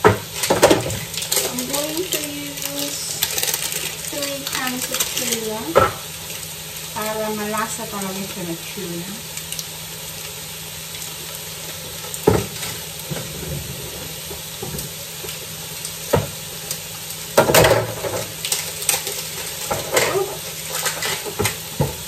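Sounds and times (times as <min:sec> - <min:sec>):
vegetables sizzling in a wok: 0:00.0 - 0:22.0.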